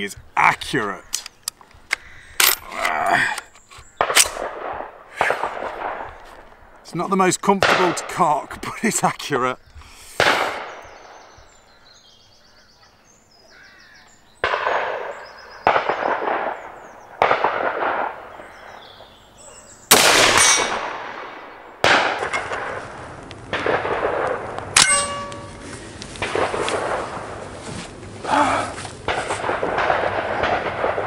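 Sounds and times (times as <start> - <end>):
rifle shots: 4.0 - 6.1, 10.2 - 10.8, 14.4 - 18.3, 19.9 - 25.6, 26.2 - 27.4, 29.1 - 31.0
steel plate clanging: 20.3 - 20.8, 24.8 - 25.7.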